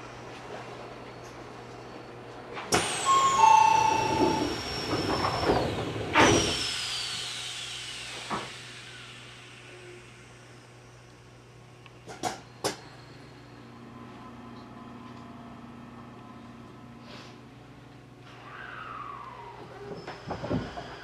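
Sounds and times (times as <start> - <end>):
air rush with falling whistle: 2.8 - 7.1, 18.4 - 21.0.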